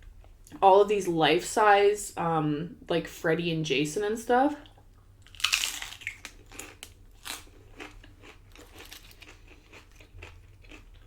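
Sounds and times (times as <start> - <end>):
person chewing crunchy chips: 5.2 - 11.0.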